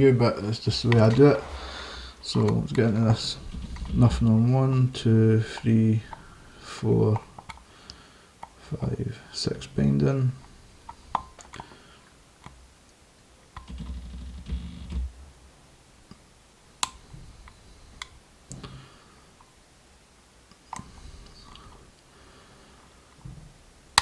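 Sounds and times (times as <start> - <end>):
low knocking and handling noise: 0.0 - 7.6.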